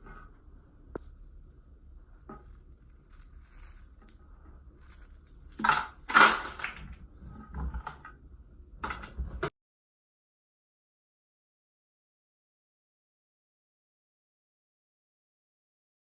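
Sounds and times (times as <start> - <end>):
faint clicks and rustles: 0.0 - 8.2.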